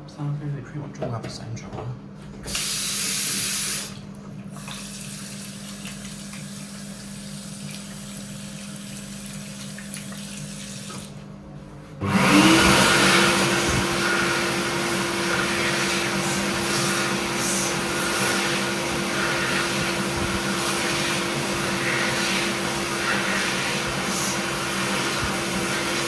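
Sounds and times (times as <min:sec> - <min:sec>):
hand dryer motor and air rush: 0:02.4 - 0:04.0, 0:12.0 - 0:26.0.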